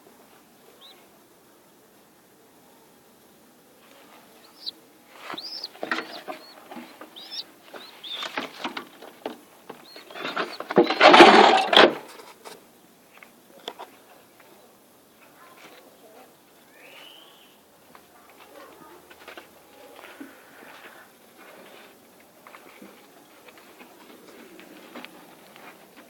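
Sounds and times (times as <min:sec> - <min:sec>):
cage birds chirping: 0:00.6 - 0:01.1, 0:04.1 - 0:11.0, 0:12.8 - 0:18.9.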